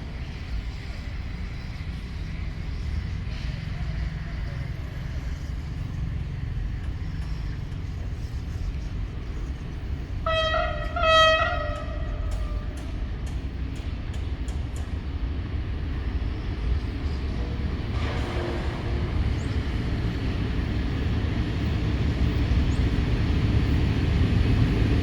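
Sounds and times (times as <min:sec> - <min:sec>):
train rumbling: 0:00.0 - 0:25.0
train horn blasts: 0:10.0 - 0:13.3, 0:18.0 - 0:19.5.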